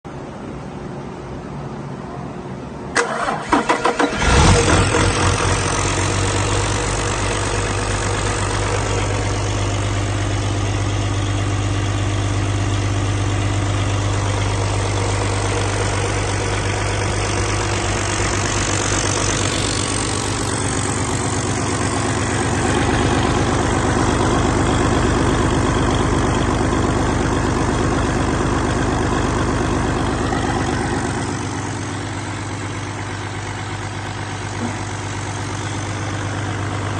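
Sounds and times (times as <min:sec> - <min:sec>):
diesel engine idling: 0:02.9 - 0:36.9
diesel engine starter cranking: 0:03.0 - 0:09.9, 0:14.1 - 0:25.7.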